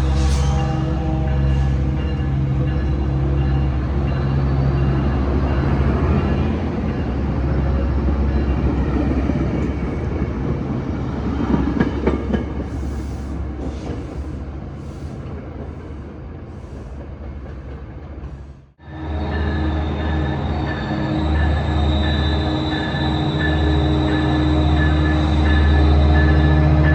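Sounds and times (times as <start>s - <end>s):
thin high squeal: 0.0s - 0.9s
diesel locomotive engine hum: 0.0s - 26.9s.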